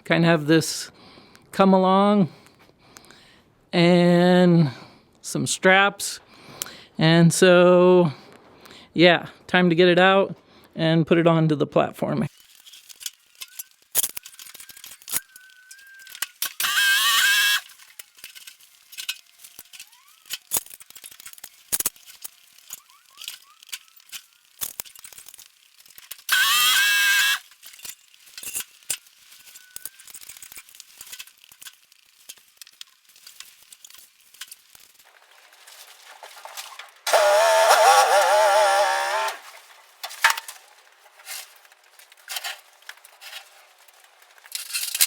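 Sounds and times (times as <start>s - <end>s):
winch and straps clicking: 12.5s - 45.0s
high squeals: 13.4s - 18.2s, 19.6s - 20.5s, 22.6s - 24.6s, 26.3s - 27.5s, 28.5s - 30.6s, 37.0s - 39.6s.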